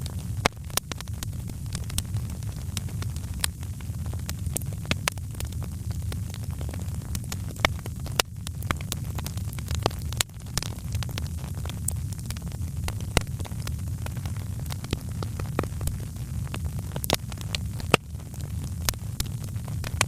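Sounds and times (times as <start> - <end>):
fire crackling in a fireplace: 0.0 - 20.0
low fire rumble: 0.0 - 20.0.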